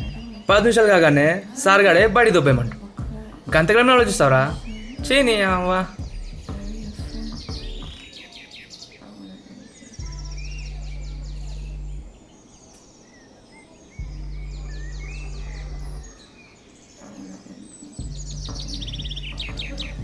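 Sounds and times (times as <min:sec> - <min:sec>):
birds chirping and trilling: 0:00.0 - 0:20.0
deep bass note of music: 0:02.0 - 0:08.0, 0:10.0 - 0:12.1, 0:14.0 - 0:16.1, 0:18.0 - 0:20.0.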